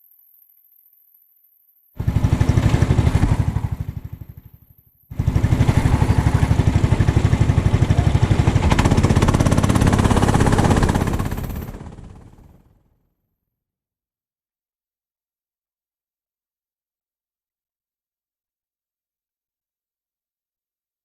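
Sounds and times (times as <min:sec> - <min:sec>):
kart engine running: 0:02.0 - 0:12.8.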